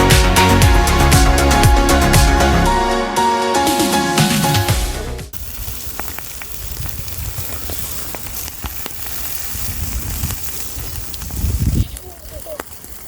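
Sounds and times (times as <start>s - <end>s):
background music: 0.0s - 5.4s
meat sizzling on a grill: 5.4s - 13.0s.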